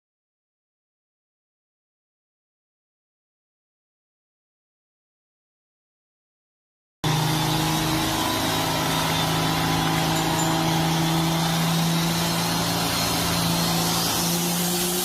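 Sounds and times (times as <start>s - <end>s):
road and traffic noise: 7.0s - 15.0s
vehicle engine hum: 7.0s - 15.0s.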